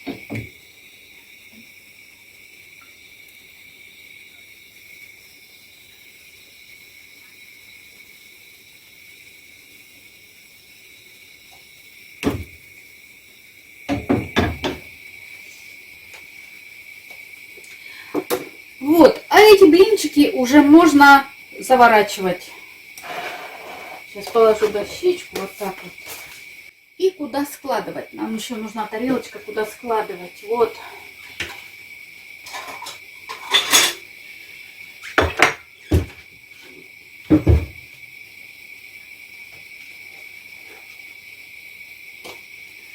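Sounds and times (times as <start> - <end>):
steady high hiss: 0.0 - 42.9
kitchen knocks: 13.9 - 14.8, 35.2 - 36.2, 37.3 - 37.8
kitchenware knocking and clinking: 13.9 - 14.8, 32.5 - 34.0, 35.2 - 36.1.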